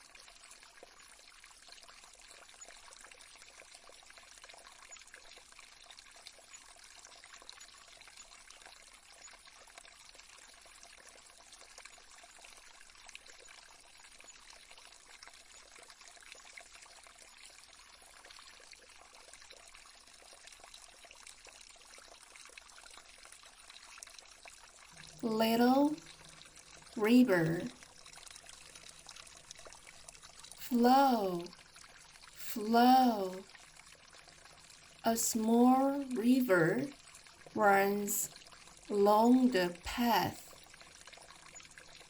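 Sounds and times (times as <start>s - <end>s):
stream trickling: 0.0s - 42.0s.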